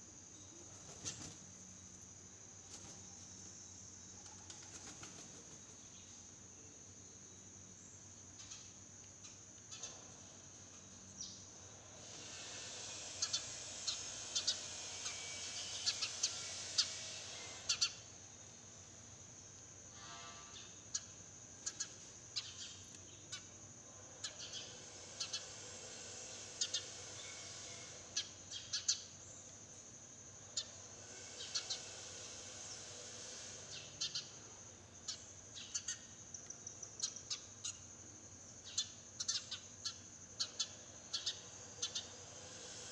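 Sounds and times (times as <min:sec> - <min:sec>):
high-pitched insect drone: 0:00.1 - 0:06.2, 0:07.0 - 0:42.9
sparrows chirping: 0:35.0 - 0:37.9, 0:38.6 - 0:42.2.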